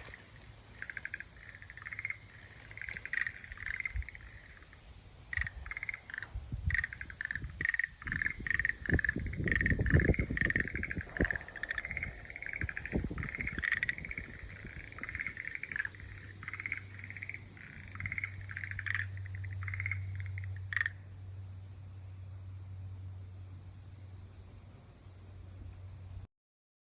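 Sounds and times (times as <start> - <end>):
frog calling in pulsed trills: 0.0 - 21.6
steady low hum: 0.0 - 26.3
low thumps and rumbles: 5.3 - 20.9.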